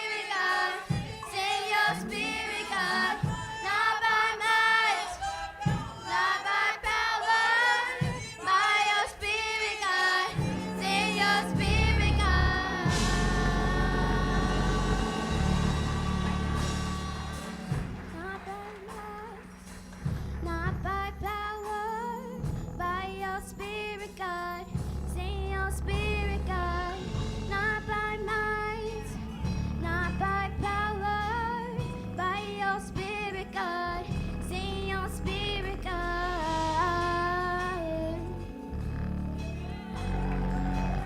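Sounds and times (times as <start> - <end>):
solo voice singing with vibrato: 0.0 - 15.2
instrumental accompaniment with bass: 0.0 - 41.0.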